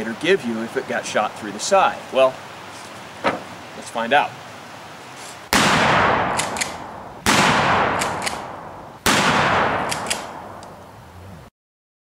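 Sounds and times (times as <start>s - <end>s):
shotgun shots: 5.5s - 10.6s.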